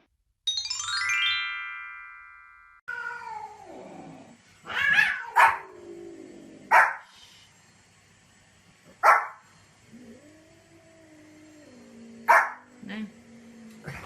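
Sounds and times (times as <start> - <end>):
chime: 0.5 - 2.8
dog barking: 5.0 - 5.7, 6.7 - 7.0, 9.0 - 9.4, 12.3 - 12.7.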